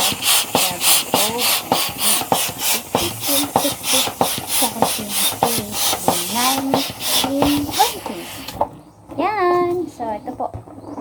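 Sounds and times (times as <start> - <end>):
hand pump rushing air: 0.0 - 8.8
pump squeaks: 0.0 - 8.8.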